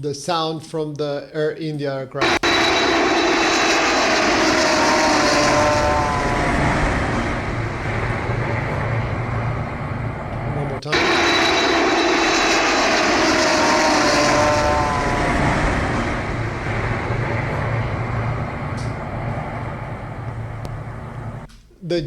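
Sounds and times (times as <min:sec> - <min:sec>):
jet airliner passing low: 0:02.2 - 0:21.5
jet engine whine: 0:02.2 - 0:21.5.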